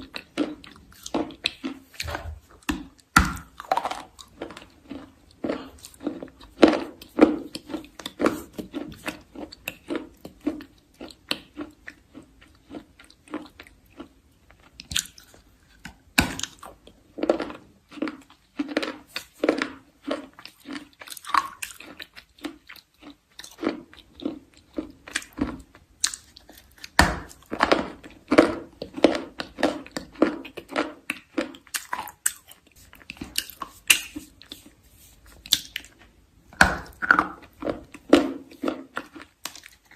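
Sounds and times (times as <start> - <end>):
chalk being chewed: 3.6 - 16.7, 28.8 - 36.1, 36.9 - 39.9.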